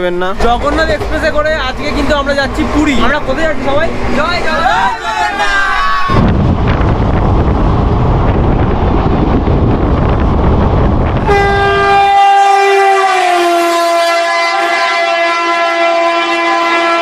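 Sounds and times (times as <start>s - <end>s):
train running at speed: 0.0s - 17.0s
train horn: 11.2s - 17.0s.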